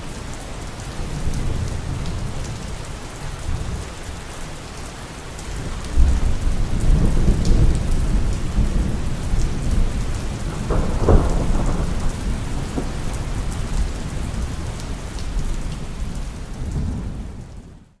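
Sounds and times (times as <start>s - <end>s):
heavy rain falling: 0.0s - 18.0s
rolling thunder: 5.6s - 17.9s.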